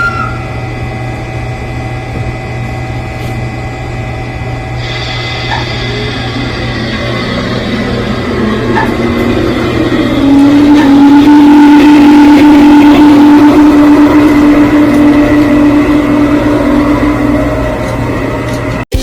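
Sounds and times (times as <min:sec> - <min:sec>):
steady whining tone: 0:00.0 - 0:18.9
model train running on track: 0:04.0 - 0:18.8.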